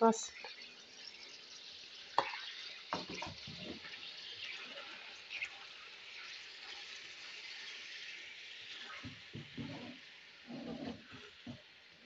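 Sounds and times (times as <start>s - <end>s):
chicken frying in hot oil: 0.0s - 12.0s
spoon knocking and scraping a pan: 2.1s - 4.2s, 8.8s - 11.8s.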